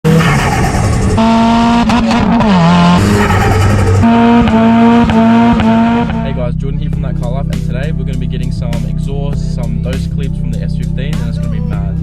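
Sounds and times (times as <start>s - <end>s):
car engine revving hard: 0.1s - 6.5s.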